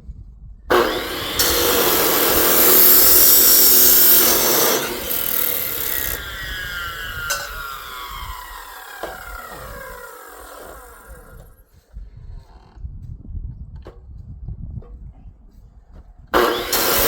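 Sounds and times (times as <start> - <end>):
power saw cutting metal: 0.7 - 11.5, 16.4 - 17.0
saw motor whining down: 0.7 - 11.5, 16.4 - 17.0.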